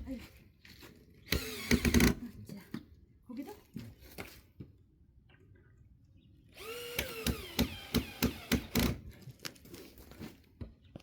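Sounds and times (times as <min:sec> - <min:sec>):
power drill motor whine: 0:06.6 - 0:08.9
drill clacking: 0:06.6 - 0:09.0.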